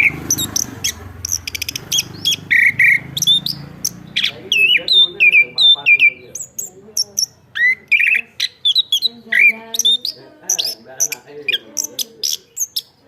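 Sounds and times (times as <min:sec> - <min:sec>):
sharp high bird chips: 0:00.0 - 0:13.0
thrush singing whistled notes: 0:00.0 - 0:13.0.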